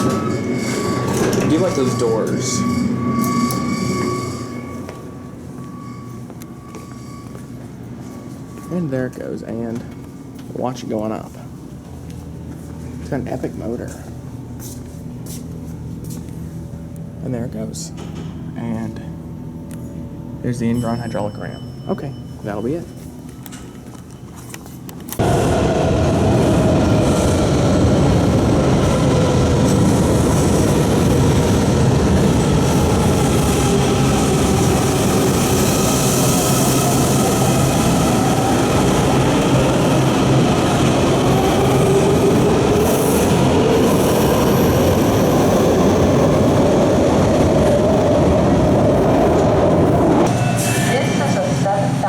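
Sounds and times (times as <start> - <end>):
train wheels rumbling on rail: 0.0 - 8.0, 25.0 - 52.0
wavering motor whine: 0.0 - 10.5.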